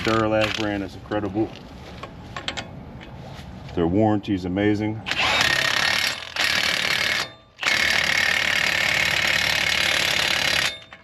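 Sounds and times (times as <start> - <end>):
impact wrench hammering: 5.2 - 11.0.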